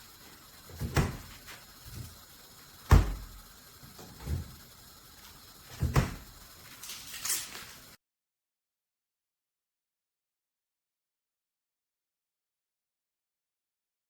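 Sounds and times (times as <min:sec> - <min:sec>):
fridge door knocks and clunks: 0:00.8 - 0:01.2, 0:02.9 - 0:03.2, 0:05.7 - 0:06.2.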